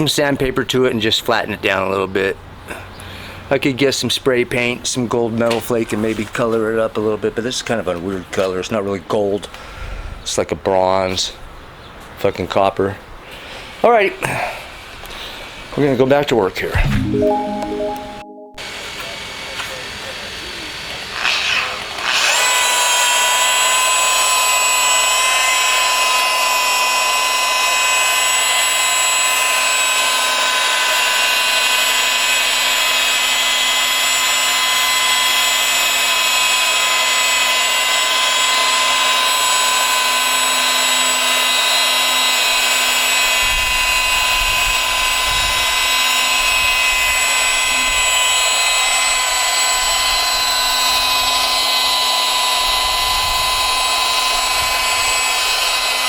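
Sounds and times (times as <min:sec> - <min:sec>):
polisher motor whine: 0:21.2 - 0:56.0.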